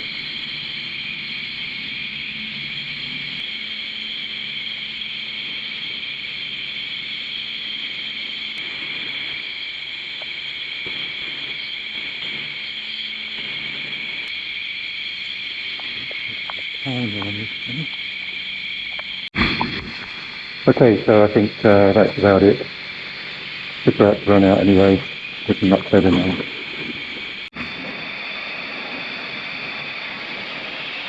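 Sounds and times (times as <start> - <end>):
wash pump humming: 12.6 - 31.0
pressure washer spraying water: 21.3 - 27.6.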